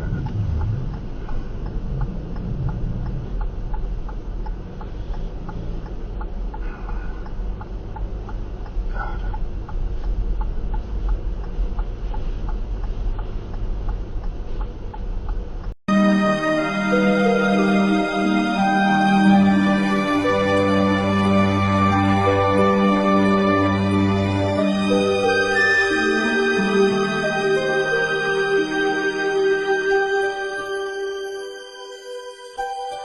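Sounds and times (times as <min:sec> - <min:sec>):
low rumble inside car: 0:00.0 - 0:15.8
hazard-light flasher ticking: 0:00.2 - 0:15.8.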